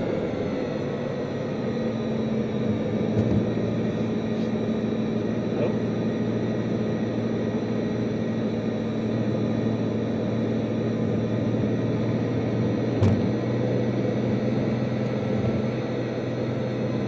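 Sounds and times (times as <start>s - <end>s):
car engine and tyre drone: 0.0s - 17.0s
short thump: 13.0s - 13.4s.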